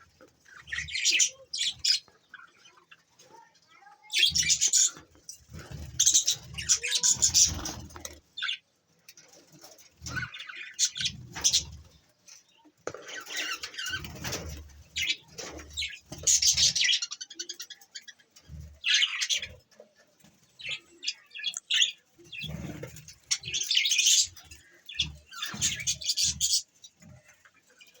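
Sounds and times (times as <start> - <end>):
budgerigars chirping: 20.6 - 26.7.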